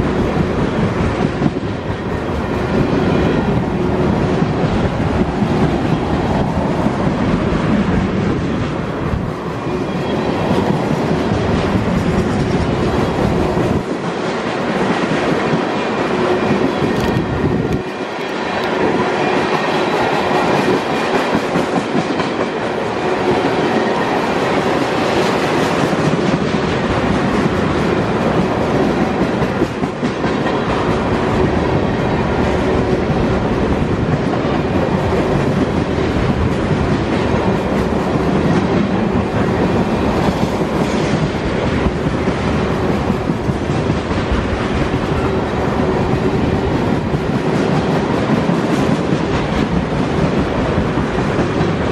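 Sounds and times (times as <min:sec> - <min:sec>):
clickety-clack over rail joints: 0:00.0 - 0:51.9
train wheels on rails: 0:00.0 - 0:51.9.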